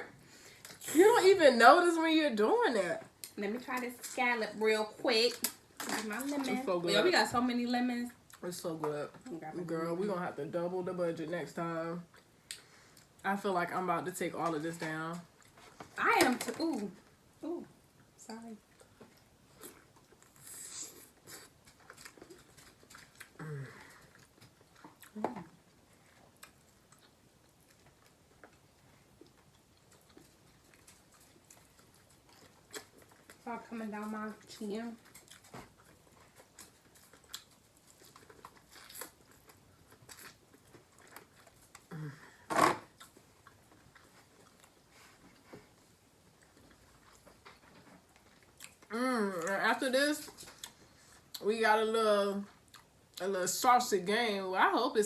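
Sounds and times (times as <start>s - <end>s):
person chewing: 18.7s - 33.4s, 35.0s - 48.9s, 50.3s - 51.4s, 52.6s - 53.2s
wet smacks of chewing: 35.0s - 41.9s.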